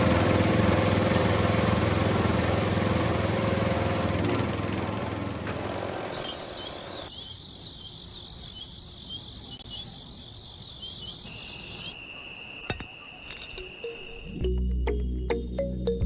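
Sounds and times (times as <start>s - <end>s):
broad motor-like noise: 0.0s - 7.1s
crickets chirping: 6.2s - 14.6s
high insect drone: 7.1s - 14.4s.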